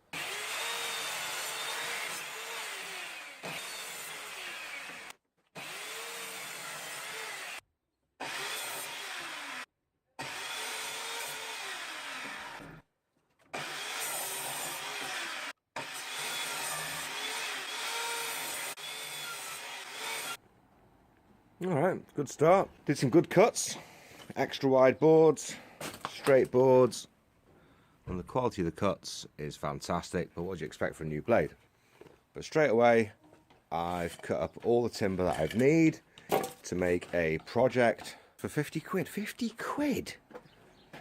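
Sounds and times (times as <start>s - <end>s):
mitre saw cutting wood: 0.0s - 7.6s, 8.2s - 12.9s, 13.5s - 20.4s.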